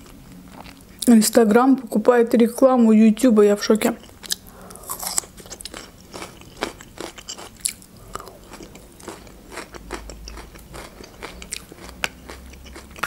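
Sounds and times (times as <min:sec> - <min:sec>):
crunchy chewing: 0:00.0 - 0:01.1, 0:03.8 - 0:13.0.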